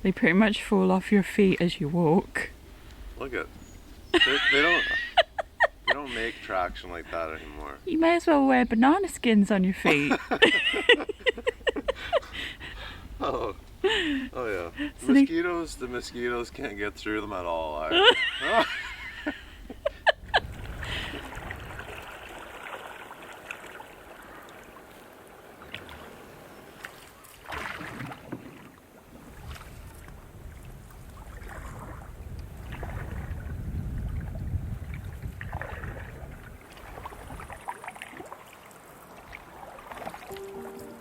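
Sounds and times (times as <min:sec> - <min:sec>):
wind rumbling on microphone: 0:18.3 - 0:22.7, 0:29.1 - 0:37.7
paddle strokes swishing in water: 0:20.4 - 0:41.0.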